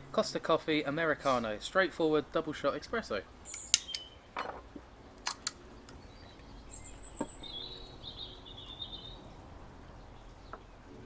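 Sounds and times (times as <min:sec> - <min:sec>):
faint bird chirping: 0:03.4 - 0:04.4, 0:05.6 - 0:11.0
sharp clicks: 0:03.5 - 0:04.1, 0:05.2 - 0:06.0.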